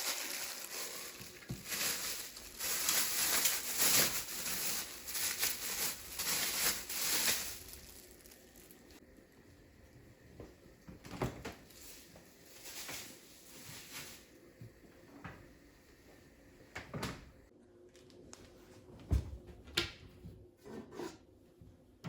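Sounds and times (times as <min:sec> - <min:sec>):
soft rustling: 0:00.0 - 0:09.0, 0:11.6 - 0:14.4.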